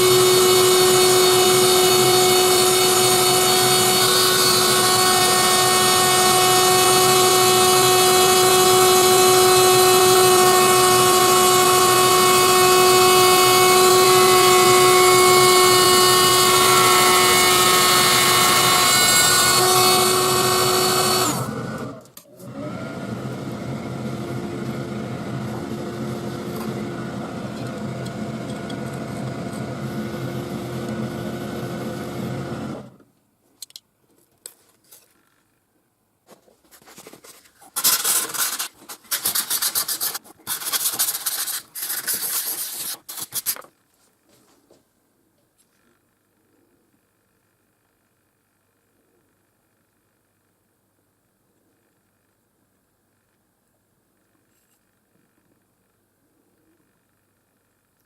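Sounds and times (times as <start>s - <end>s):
engraver motor whine: 0.0s - 33.0s.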